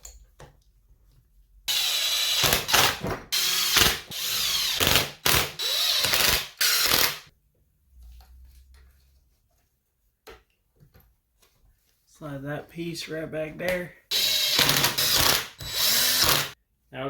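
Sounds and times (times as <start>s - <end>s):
power drill whining: 1.7s - 7.3s, 14.1s - 16.6s.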